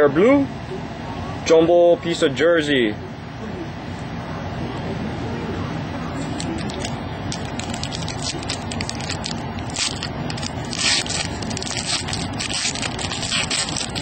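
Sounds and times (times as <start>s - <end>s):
card pack wrapper crinkling: 6.3s - 14.0s.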